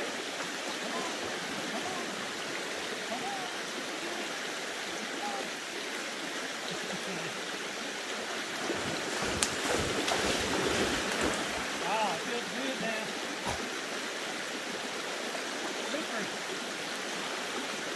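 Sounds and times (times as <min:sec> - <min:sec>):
creek water running: 0:00.0 - 0:17.9.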